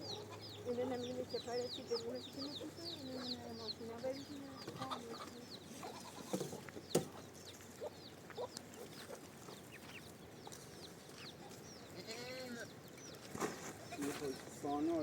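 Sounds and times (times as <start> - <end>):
farm fowl chirping: 0.0 - 15.0.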